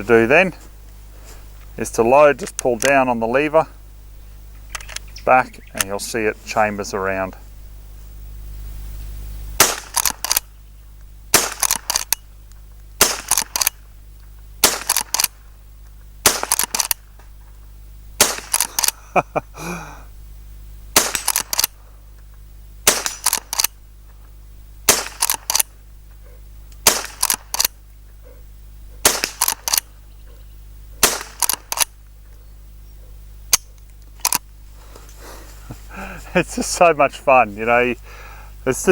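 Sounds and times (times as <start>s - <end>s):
rifle shots: 9.6s - 10.5s, 11.3s - 12.1s, 13.0s - 13.8s, 14.6s - 15.4s, 16.2s - 17.0s, 18.2s - 19.0s, 21.0s - 21.8s, 22.8s - 23.7s, 24.9s - 25.7s, 26.8s - 27.8s, 29.0s - 29.9s, 31.0s - 31.9s.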